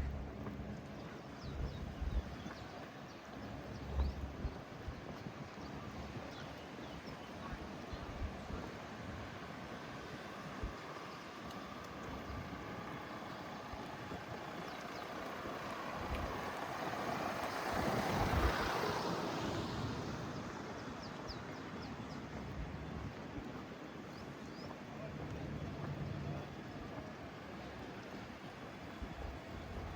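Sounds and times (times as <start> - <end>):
motor vehicle passing by: 11.3 - 21.5.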